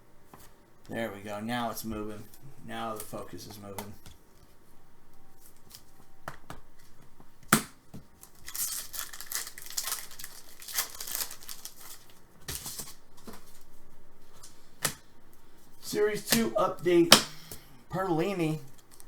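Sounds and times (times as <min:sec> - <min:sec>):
foil wrapper tearing and crinkling: 0:08.2 - 0:13.0.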